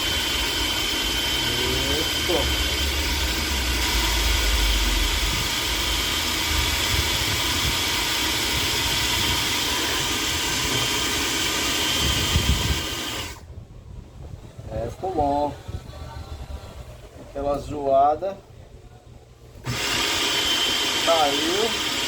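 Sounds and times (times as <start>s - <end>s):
food processor motor running: 0.0s - 13.4s, 19.6s - 22.0s.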